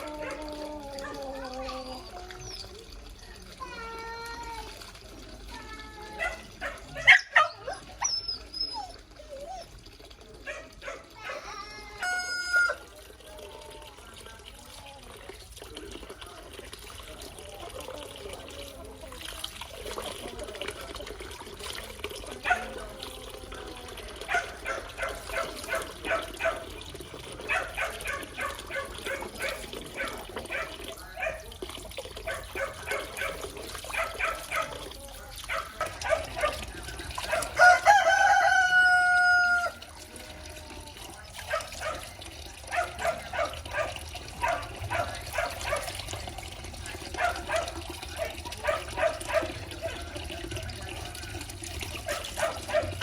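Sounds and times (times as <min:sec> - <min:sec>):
rooster crowing: 0:12.0 - 0:12.9, 0:37.4 - 0:39.8.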